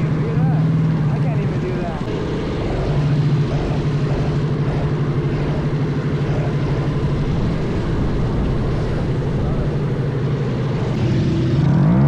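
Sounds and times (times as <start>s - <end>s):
minibike engine buzzing: 0.0s - 12.0s.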